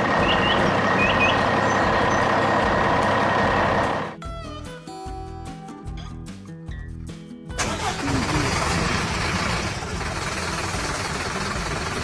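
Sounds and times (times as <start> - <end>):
heavy machine engine running: 0.0 - 4.2, 7.6 - 12.0
light music: 0.0 - 8.2.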